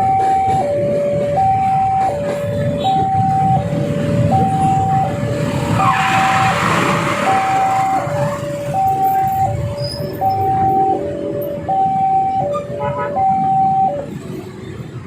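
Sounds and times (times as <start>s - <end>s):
level crossing two-tone alarm: 0.0s - 14.1s
road traffic rumble: 0.0s - 15.0s
vehicle rushing past: 4.0s - 9.0s.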